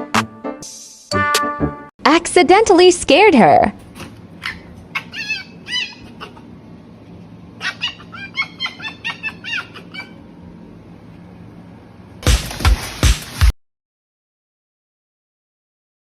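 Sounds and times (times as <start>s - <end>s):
small animal chirping squeaks: 4.4s - 6.4s, 7.6s - 10.2s.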